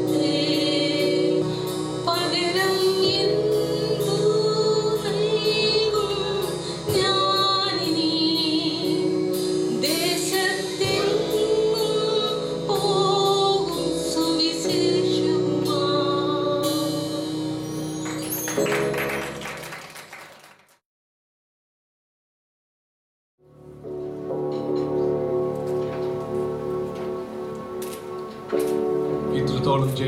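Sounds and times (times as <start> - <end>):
woman singing gospel song: 0.0 - 9.1, 9.8 - 17.4
instrumental accompaniment with beat: 8.8 - 20.2.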